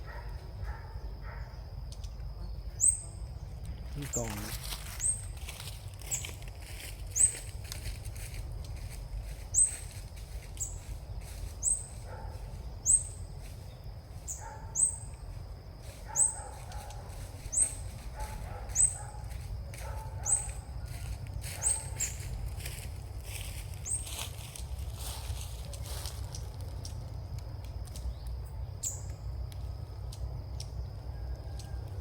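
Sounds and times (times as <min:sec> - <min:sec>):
bird chirping: 0:00.0 - 0:05.3, 0:07.1 - 0:07.5, 0:09.5 - 0:09.9, 0:10.6 - 0:15.2, 0:16.1 - 0:20.7, 0:21.6 - 0:22.4, 0:23.8 - 0:24.1, 0:28.0 - 0:29.2
low outdoor rumble: 0:00.0 - 0:32.0
fainter lower bird calls: 0:00.8 - 0:05.4, 0:07.1 - 0:07.5, 0:09.4 - 0:10.0, 0:10.6 - 0:15.3, 0:15.9 - 0:22.4, 0:23.8 - 0:24.2.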